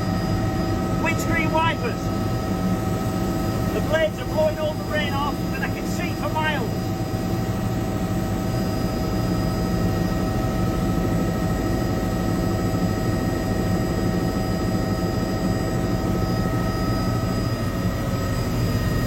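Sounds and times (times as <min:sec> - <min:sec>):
helicopter rotor and engine rumble: 0:00.0 - 0:19.0
constant high tones: 0:03.2 - 0:07.1.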